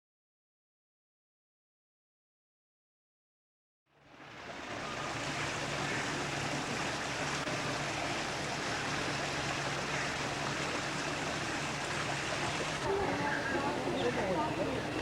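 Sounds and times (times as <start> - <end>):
flowing water rushing: 3.9 - 15.0.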